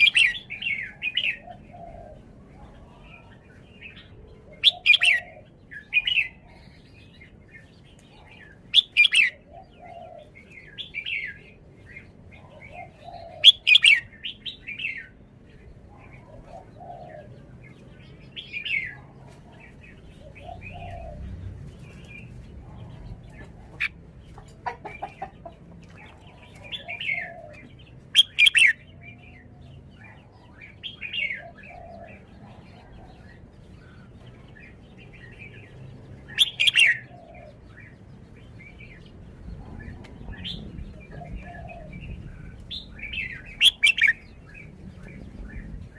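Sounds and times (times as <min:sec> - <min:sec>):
bird singing clear phrases: 0:00.0 - 0:45.9.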